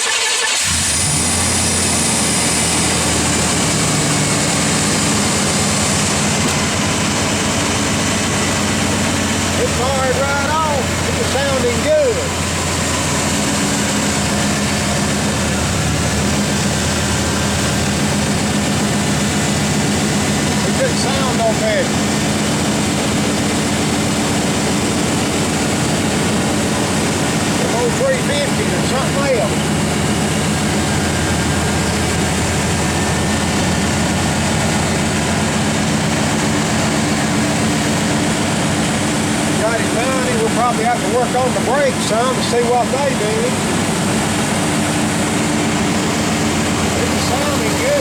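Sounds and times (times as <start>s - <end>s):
truck engine running steadily: 0.0s - 48.0s
person talking: 9.6s - 12.4s, 20.6s - 22.0s, 27.6s - 29.6s, 39.6s - 43.6s, 47.0s - 48.0s.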